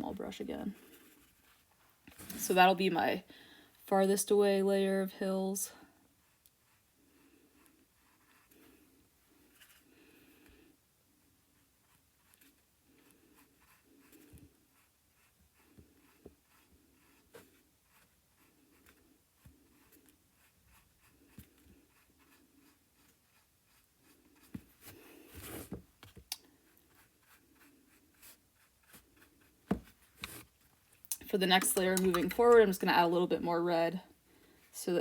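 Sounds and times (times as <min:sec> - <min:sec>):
light clicks and taps: 0:31.1 - 0:32.8.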